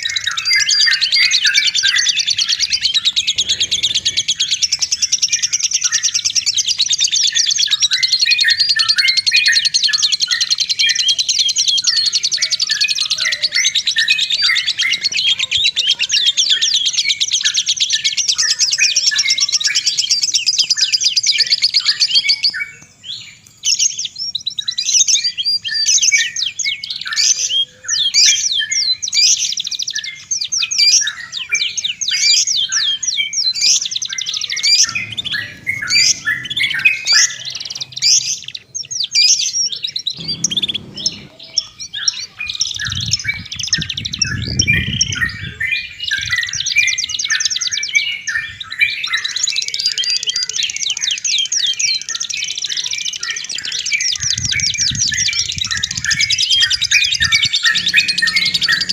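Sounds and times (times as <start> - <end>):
songbirds chirping and trilling: 0.0 - 58.9
low rumble: 34.6 - 38.2, 40.2 - 41.8, 56.7 - 58.9.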